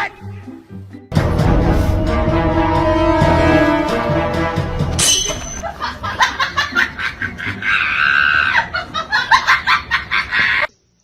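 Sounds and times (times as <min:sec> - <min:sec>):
person laughing hard: 0:05.6 - 0:10.7.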